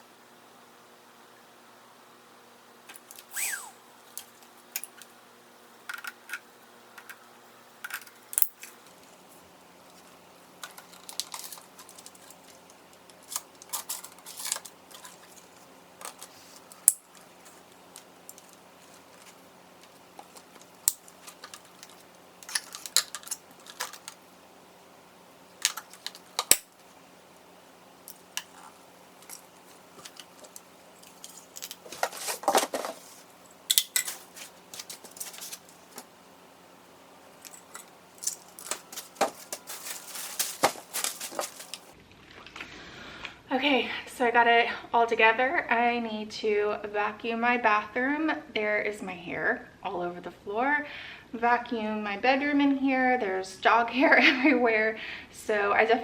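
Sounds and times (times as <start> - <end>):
plastic parts clicking and knocking: 5.9 - 7.2, 7.8 - 8.8, 10.6 - 17.3, 18.0 - 24.2, 25.6 - 26.8
packaging rustling: 9.9 - 24.2, 25.6 - 26.9, 28.1 - 36.1, 37.4 - 42.0.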